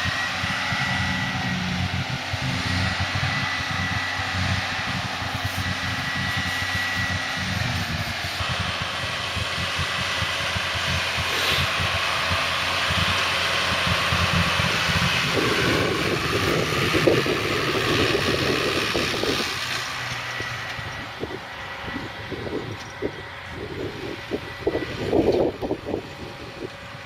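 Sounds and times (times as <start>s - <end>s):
heavy farm machinery engine rumble: 0.0s - 27.0s.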